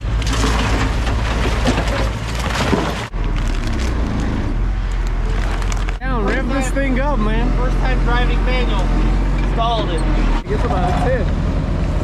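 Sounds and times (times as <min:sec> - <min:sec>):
concrete debris cracking: 0:00.0 - 0:06.0
demolition machinery running: 0:00.0 - 0:12.0
diesel engine running: 0:00.0 - 0:12.0.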